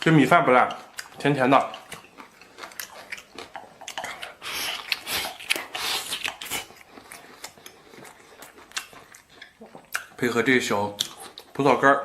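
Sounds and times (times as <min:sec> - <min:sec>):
person chewing food: 0:00.0 - 0:11.8.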